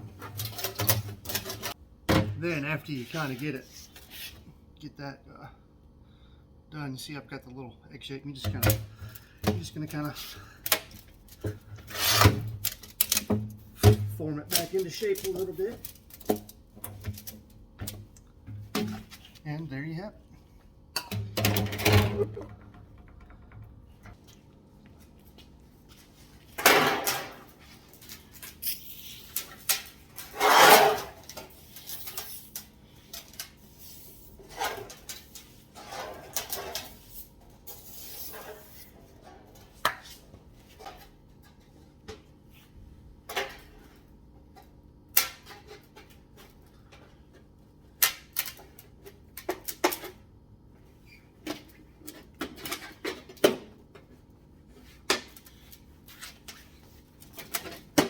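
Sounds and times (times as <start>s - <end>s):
metal pipe scraping rustles: 26.7s - 39.5s.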